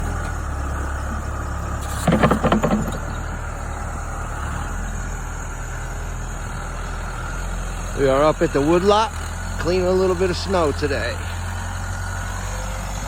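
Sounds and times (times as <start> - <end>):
diesel engine running: 0.0 - 13.0
clattering knocks: 1.8 - 3.4.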